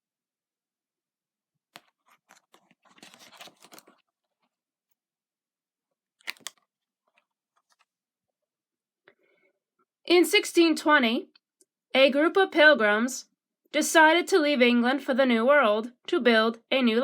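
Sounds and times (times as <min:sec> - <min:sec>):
paper page rustling: 0:01.8 - 0:04.5, 0:06.2 - 0:08.0.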